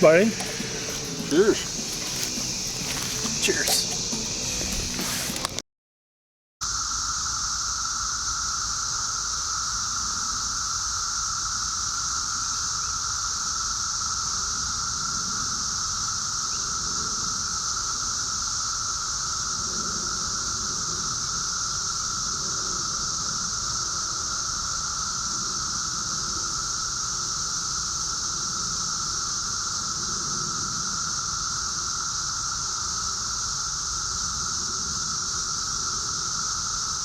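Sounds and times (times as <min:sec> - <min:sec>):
cicadas droning: 0:00.0 - 0:05.6, 0:06.6 - 0:37.0.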